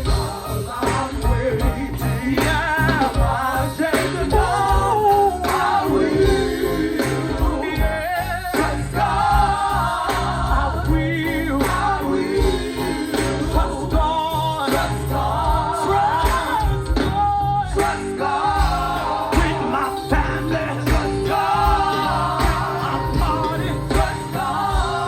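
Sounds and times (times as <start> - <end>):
band with bass and drums: 0.0 - 25.0.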